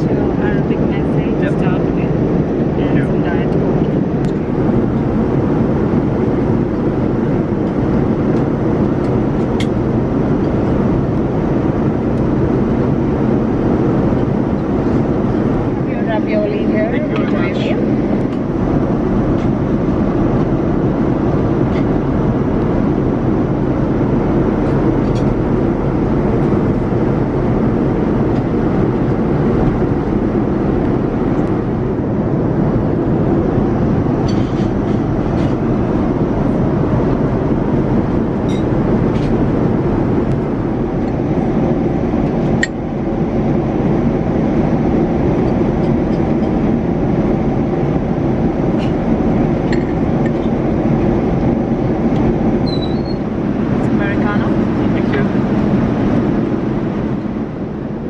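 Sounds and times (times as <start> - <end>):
airliner cabin noise: 0.0 - 58.0.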